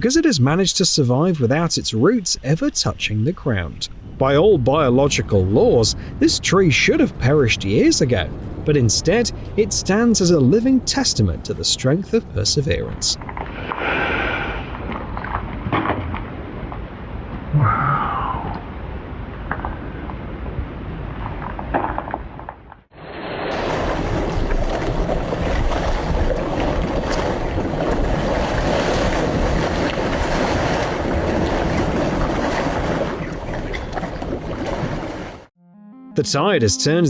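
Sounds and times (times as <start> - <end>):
wind and surf rushing: 2.4 - 15.0, 16.4 - 21.4, 22.9 - 35.5
wind buffeting microphone: 3.4 - 13.6, 23.5 - 35.4.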